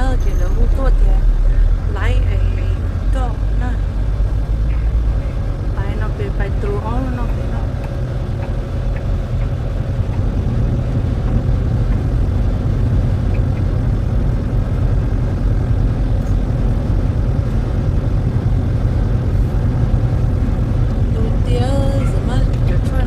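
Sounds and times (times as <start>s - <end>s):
truck engine rumbling: 0.0s - 23.0s.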